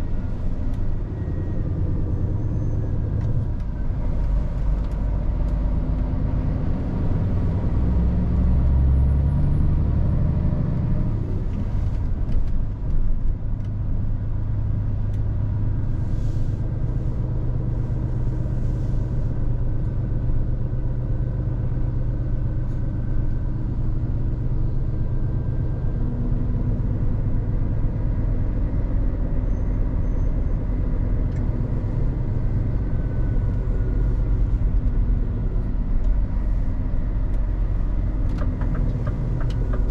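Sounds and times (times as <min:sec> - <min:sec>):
truck diesel engine running: 0:00.0 - 0:07.8, 0:16.3 - 0:39.9.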